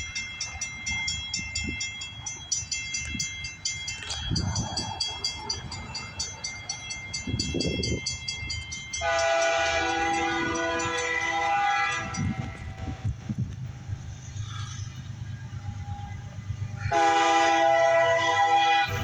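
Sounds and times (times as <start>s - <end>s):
railroad crossing bell ringing: 0.0s - 13.2s, 13.8s - 19.0s
freight train rumbling: 0.0s - 19.0s
locomotive air horn blast: 9.0s - 13.1s, 16.8s - 19.0s.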